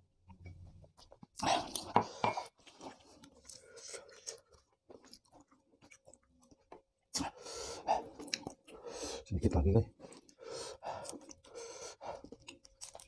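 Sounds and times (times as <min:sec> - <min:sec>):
man chewing food: 0:00.2 - 0:09.2, 0:10.0 - 0:13.0.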